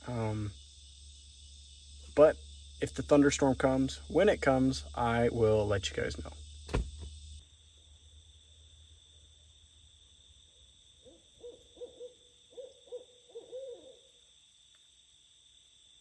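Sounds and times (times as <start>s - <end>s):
crickets trilling: 0.0s - 16.0s
owl hooting: 11.0s - 14.2s.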